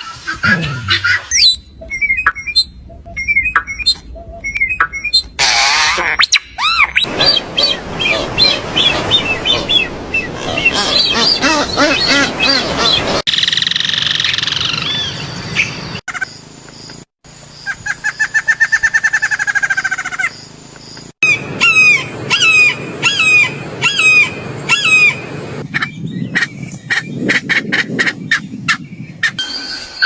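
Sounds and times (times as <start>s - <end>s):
sharp swooping bird call: 0.0s - 2.6s
fast run of bird notes: 0.0s - 5.7s.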